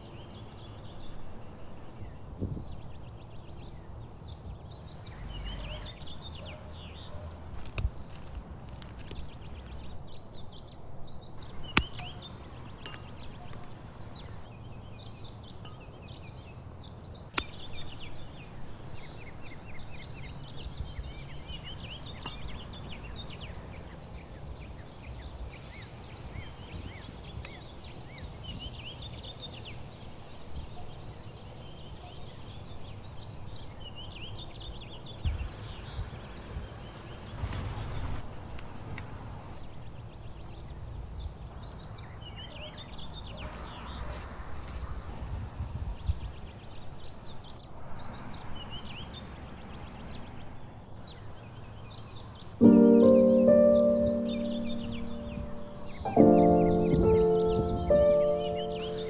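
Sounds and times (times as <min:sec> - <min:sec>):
small birds chirping: 0:02.0 - 0:31.4, 0:50.4 - 0:59.0.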